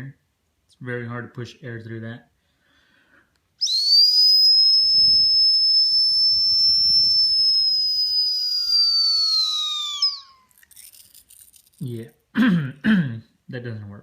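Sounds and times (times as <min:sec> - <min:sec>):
high-pitched whistle blown by mouth: 0:03.6 - 0:11.0.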